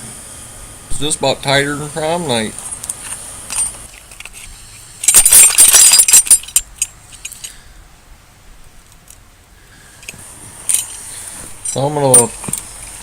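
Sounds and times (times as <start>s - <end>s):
metal hand tools clinking: 2.8s - 7.6s, 11.6s - 13.0s.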